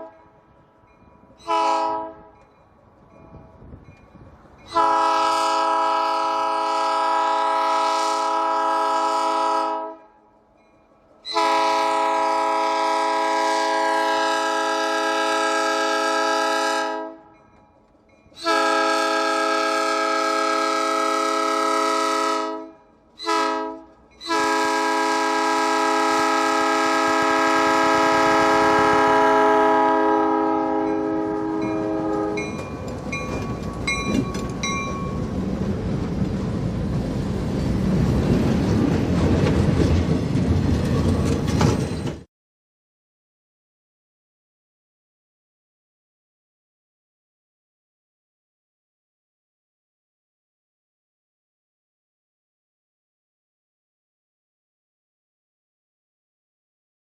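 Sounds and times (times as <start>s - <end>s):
locomotive air horn: 0.0s - 0.3s, 1.4s - 2.4s, 4.7s - 10.1s, 11.3s - 17.3s, 18.4s - 32.6s
train rumble: 23.1s - 42.3s.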